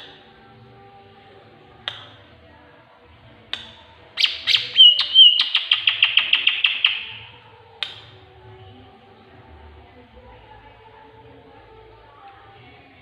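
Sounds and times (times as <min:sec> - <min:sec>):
kingfisher calls: 0:04.2 - 0:07.2
warbled whistle: 0:04.2 - 0:07.2
fast rattling bird call: 0:04.2 - 0:07.3.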